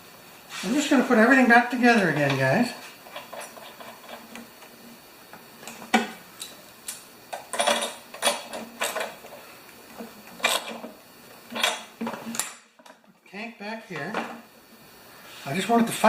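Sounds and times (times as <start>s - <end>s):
metal tools clinking: 7.5s - 9.2s.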